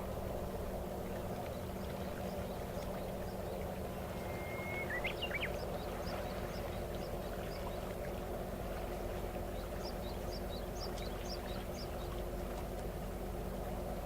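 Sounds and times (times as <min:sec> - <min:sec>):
boat engine droning: 0:00.0 - 0:14.0
bird chirping: 0:04.1 - 0:06.7
bird whistle: 0:04.2 - 0:05.5.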